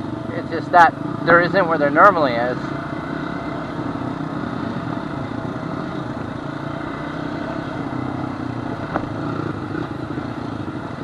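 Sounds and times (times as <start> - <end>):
quad engine running steadily: 0.0 - 11.0.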